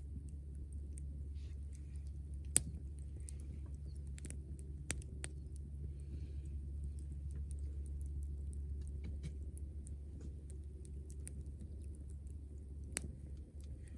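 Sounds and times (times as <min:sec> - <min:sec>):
low rumble: 0:00.0 - 0:13.9
wood fire crackling and popping: 0:00.0 - 0:13.9.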